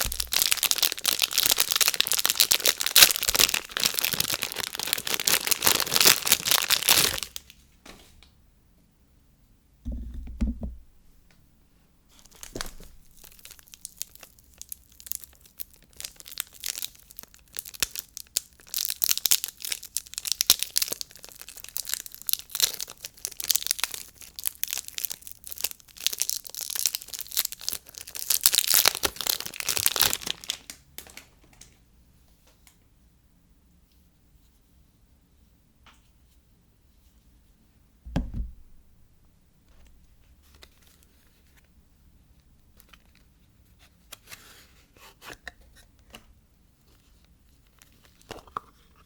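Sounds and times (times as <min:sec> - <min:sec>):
wrapper crinkling and tearing: 0:00.0 - 0:07.6, 0:12.2 - 0:31.8, 0:39.7 - 0:41.6
soft thump: 0:09.9 - 0:11.0, 0:38.1 - 0:39.0.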